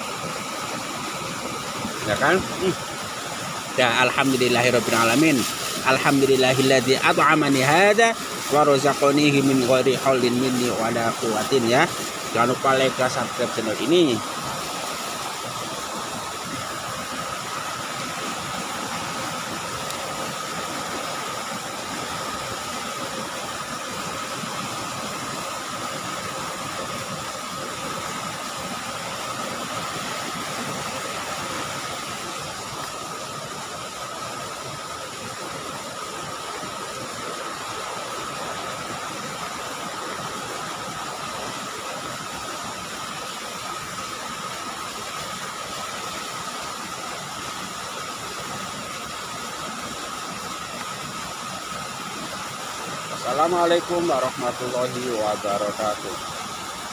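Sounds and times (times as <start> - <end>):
flowing floodwater: 0.0 - 56.9
rain: 0.0 - 56.9.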